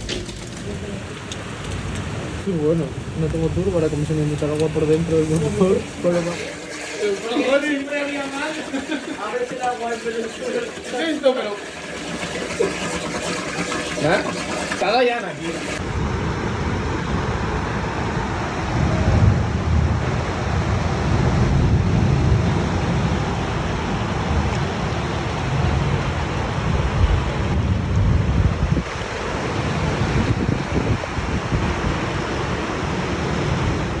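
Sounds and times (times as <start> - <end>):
windstorm roar: 15.5 - 34.0
wind buffeting microphone: 15.8 - 34.0.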